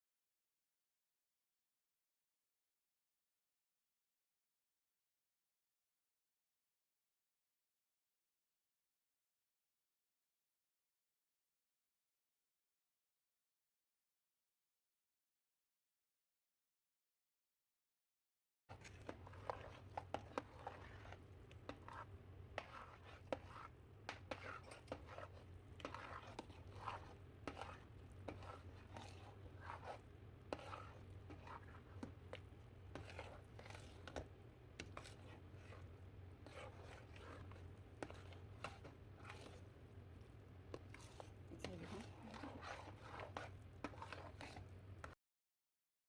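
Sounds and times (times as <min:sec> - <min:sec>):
kitchen utensils clicking and scraping: 0:40.7 - 0:45.2.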